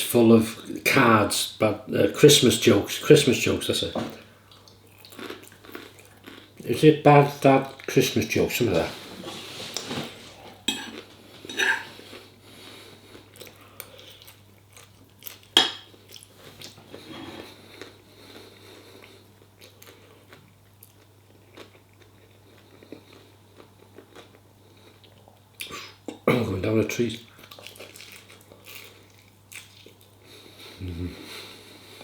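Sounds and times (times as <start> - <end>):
person chewing: 4.4 - 6.7, 9.0 - 26.2, 27.3 - 31.4.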